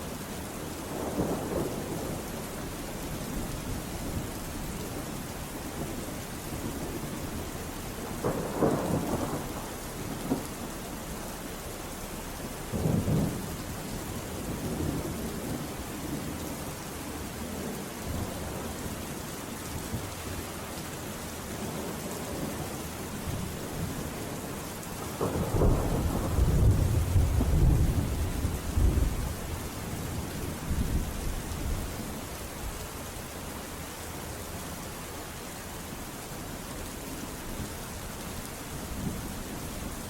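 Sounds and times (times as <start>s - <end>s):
steady rainfall: 0.0s - 40.0s
thunder rumbling: 0.9s - 4.3s, 8.0s - 10.8s, 25.1s - 31.8s.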